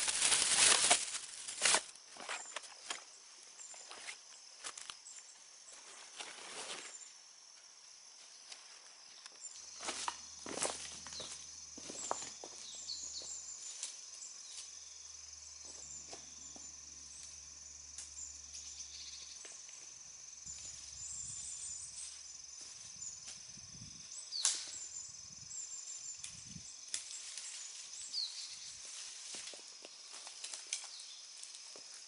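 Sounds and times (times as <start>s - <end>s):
high-pitched insect drone: 6.8s - 32.0s
bird chirps: 18.1s - 19.5s, 20.5s - 22.4s.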